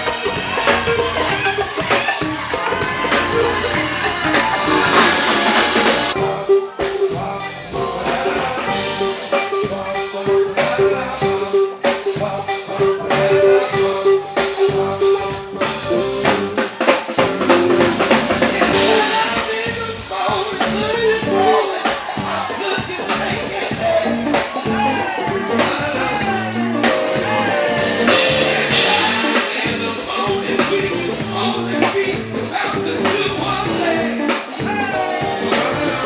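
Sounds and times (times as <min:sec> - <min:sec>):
band playing: 0:00.0 - 0:36.0
drum kit beat: 0:00.0 - 0:36.0
sustained musical note: 0:04.5 - 0:06.4.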